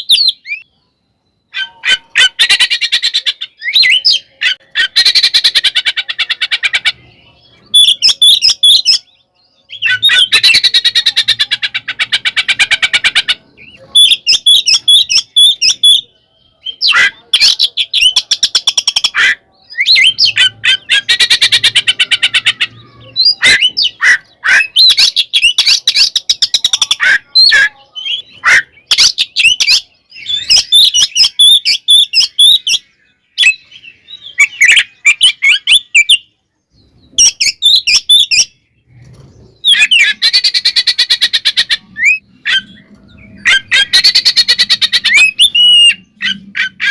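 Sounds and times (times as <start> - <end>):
bird whistles and squawks: 0.0 - 36.3, 37.0 - 46.9
bird singing harsh chattering rattles: 9.7 - 16.0, 16.7 - 33.8, 36.8 - 46.9.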